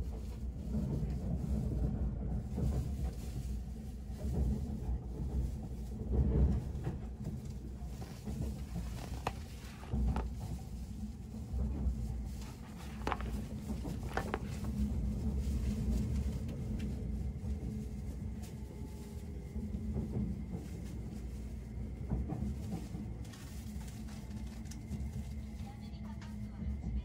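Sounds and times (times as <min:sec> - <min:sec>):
electric train rumbling: 0:00.0 - 0:27.0
paper rustling: 0:07.9 - 0:10.6, 0:12.3 - 0:15.9.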